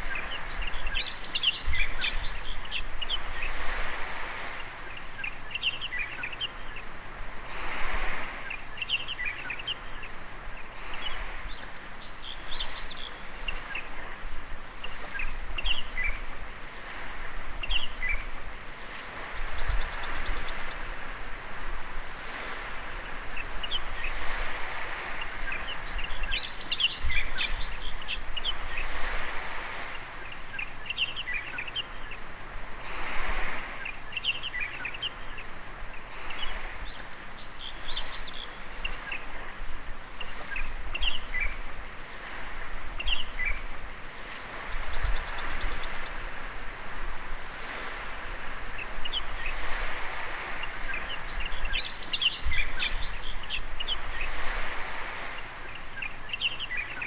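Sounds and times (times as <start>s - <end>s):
small waves washing on beach: 0.0s - 57.0s
birds chirping and calling: 44.6s - 46.4s.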